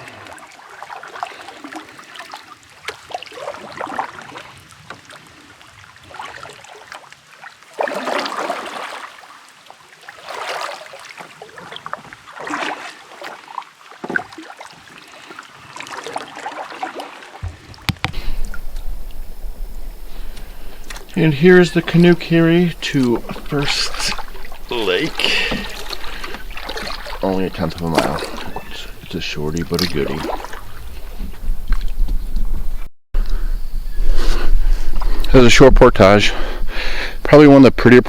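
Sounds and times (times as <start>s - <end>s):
paddle splashing water: 0.0s - 32.9s
light knocks: 17.4s - 18.9s
low steady rumble: 17.5s - 29.6s.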